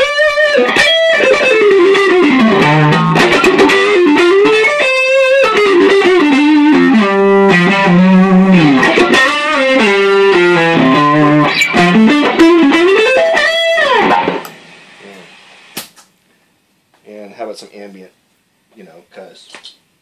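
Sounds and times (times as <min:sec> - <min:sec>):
electric guitar lead lines: 0:00.0 - 0:15.4.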